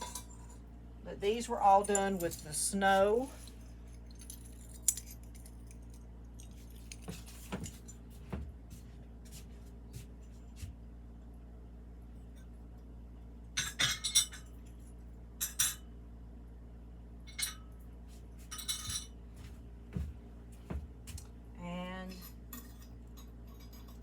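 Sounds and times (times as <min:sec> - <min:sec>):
low steady hum: 0:00.0 - 0:24.0
ceramic pieces clinking: 0:03.4 - 0:05.8, 0:22.2 - 0:24.0.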